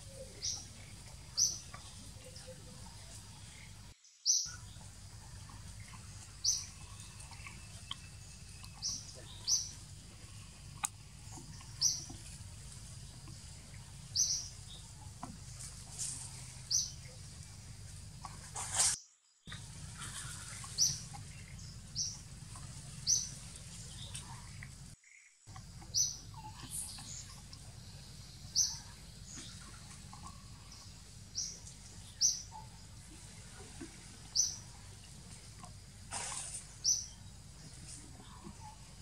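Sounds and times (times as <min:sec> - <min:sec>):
bird chirping: 0:00.0 - 0:18.9, 0:19.5 - 0:39.0
rustling: 0:15.1 - 0:21.5
background hiss: 0:25.8 - 0:39.0.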